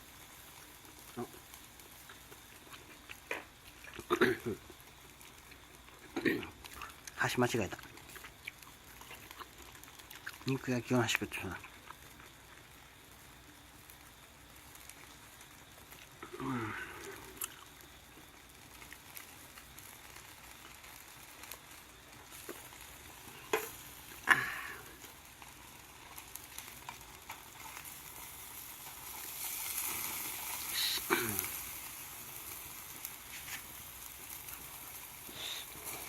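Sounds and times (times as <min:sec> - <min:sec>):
meat sizzling on grill: 0:00.0 - 0:36.0
sharp clicks on grill: 0:02.9 - 0:04.3, 0:22.2 - 0:36.0.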